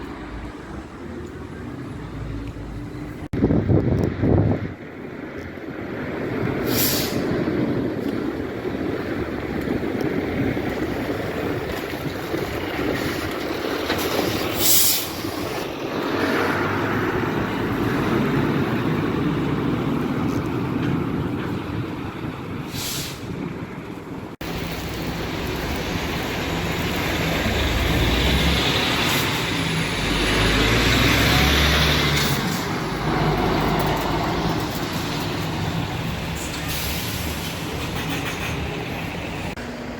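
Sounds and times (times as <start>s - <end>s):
diesel engine rumble: 0.0s - 39.9s
trucks driving by: 0.0s - 39.9s
air brake hisses: 6.6s - 7.3s, 14.6s - 15.3s, 22.7s - 23.4s, 36.4s - 37.8s.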